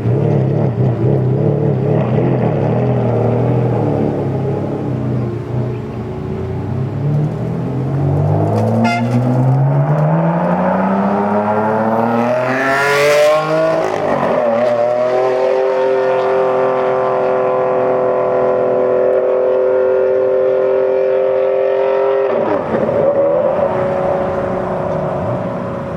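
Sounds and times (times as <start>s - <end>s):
sports car engine accelerating: 0.0s - 25.9s.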